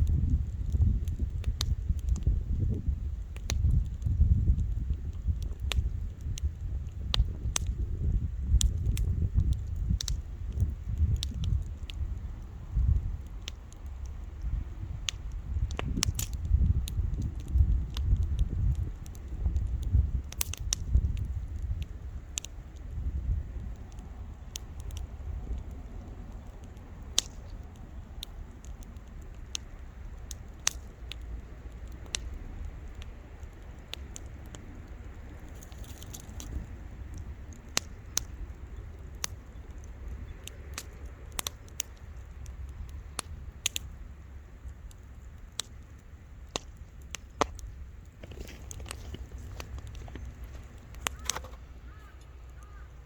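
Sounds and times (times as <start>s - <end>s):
campfire crackling: 0.0s - 53.0s
low steady rumble: 0.0s - 53.0s.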